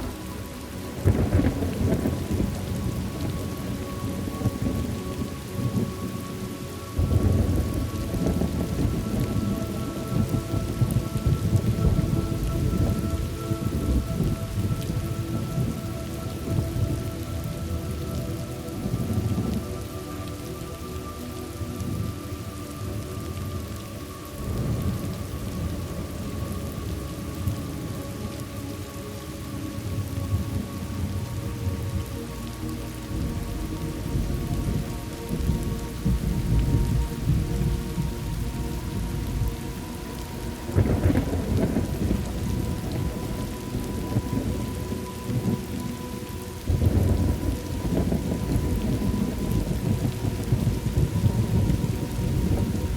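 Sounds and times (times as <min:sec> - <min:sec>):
steady rain: 0:00.0 - 0:52.9
thunder rolling: 0:01.0 - 0:05.0, 0:07.0 - 0:17.0, 0:34.1 - 0:44.7, 0:46.6 - 0:52.9.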